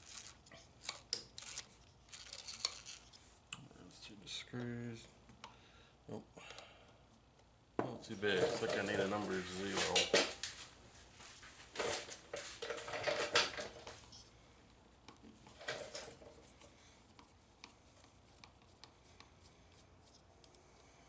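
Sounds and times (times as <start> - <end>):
metal tools clattering and scraping: 8.2 - 10.5, 11.8 - 14.0.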